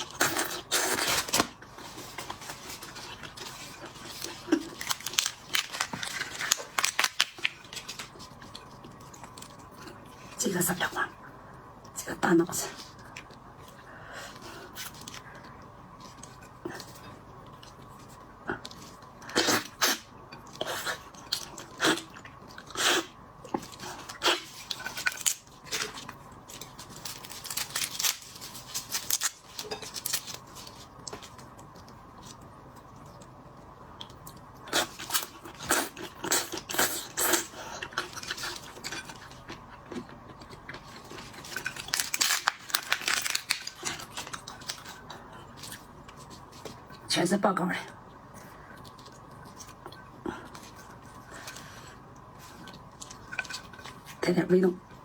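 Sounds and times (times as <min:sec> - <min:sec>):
shellfish shells crackling: 0:04.1 - 0:08.1, 0:24.6 - 0:30.6, 0:41.1 - 0:45.0.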